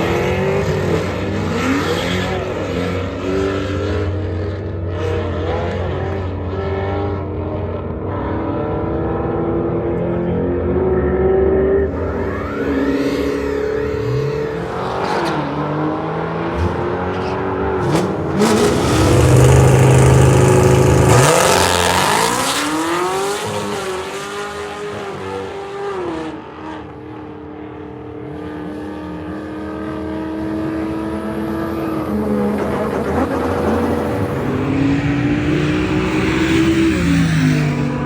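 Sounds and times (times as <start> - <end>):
vehicle engine revving: 11.9 - 26.2, 29.9 - 38.0.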